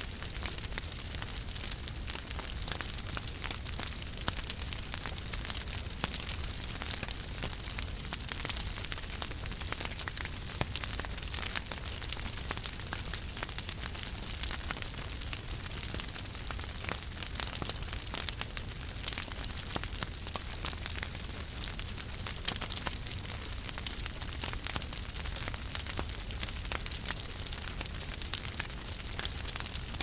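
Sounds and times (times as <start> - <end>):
fire crackling in a fireplace: 0.0 - 30.0.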